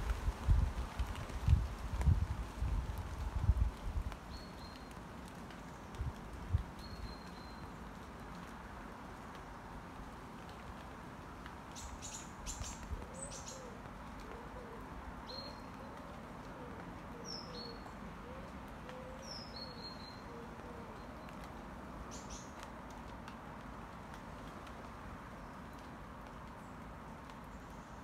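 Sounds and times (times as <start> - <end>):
pigeon cooing: 13.0 - 14.9, 18.2 - 19.2.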